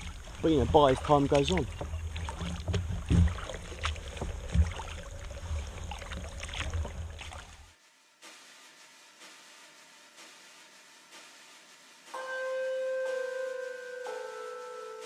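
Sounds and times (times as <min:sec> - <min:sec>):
knocks from boat and paddle: 0:00.0 - 0:07.4
wind rumble on microphone: 0:00.0 - 0:07.7
faint background music: 0:00.2 - 0:15.0.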